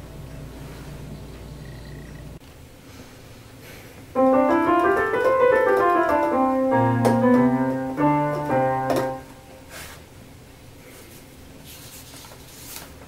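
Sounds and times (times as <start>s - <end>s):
piano melody: 4.2s - 9.7s.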